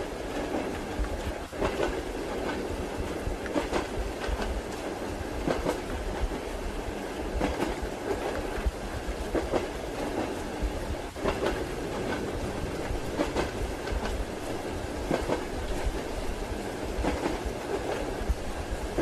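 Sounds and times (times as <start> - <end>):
train wheels clacking: 0.0 - 6.5, 7.3 - 19.0
railway carriage rumble: 0.0 - 19.0
rain hiss: 6.4 - 19.0.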